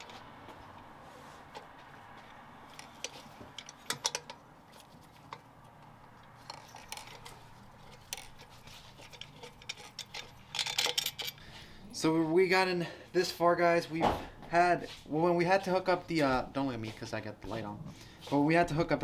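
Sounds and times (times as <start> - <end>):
metallic clicks of hand tools: 2.7 - 4.4.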